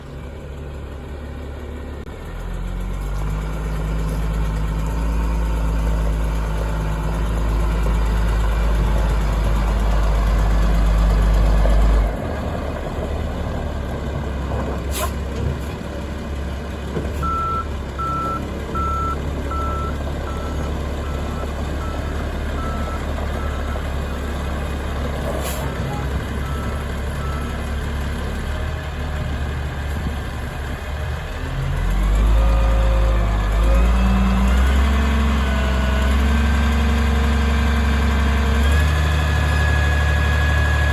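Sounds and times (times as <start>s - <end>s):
truck engine running: 0.0s - 40.9s
reversing alarm beeping: 17.2s - 23.9s.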